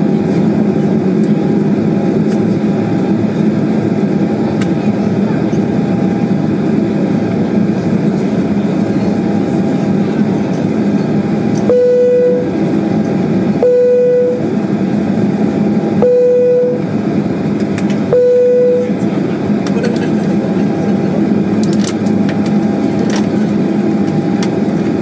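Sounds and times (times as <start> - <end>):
airliner cabin engine noise: 0.0 - 25.0
short single-pitch beeps: 11.7 - 12.5, 13.6 - 14.4, 16.0 - 16.8, 18.1 - 18.9.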